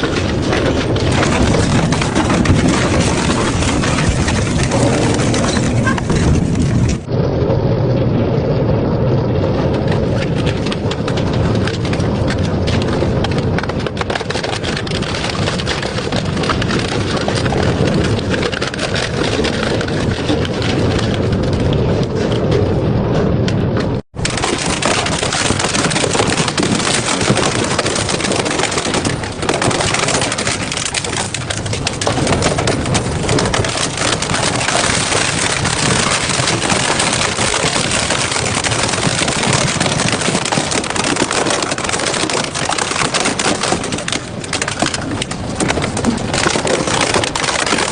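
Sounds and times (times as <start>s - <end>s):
shredder crunching metal scrap: 0.0s - 7.1s, 24.2s - 47.9s.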